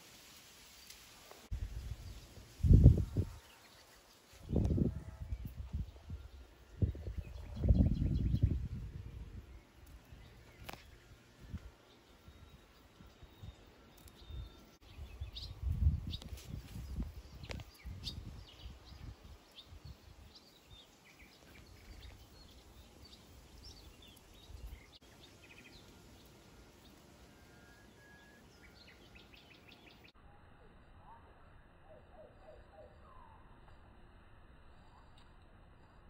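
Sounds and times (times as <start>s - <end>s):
small birds chirping: 1.6s - 30.2s.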